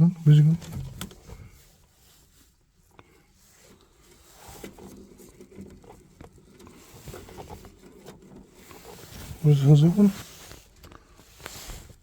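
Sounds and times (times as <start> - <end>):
light clicks and rustling: 0.3 - 12.0.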